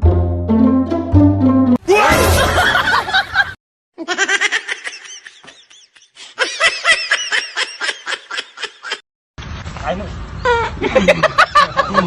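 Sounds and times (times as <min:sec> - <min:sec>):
music: 0:00.0 - 0:01.8
high-pitched laughter: 0:02.1 - 0:09.0.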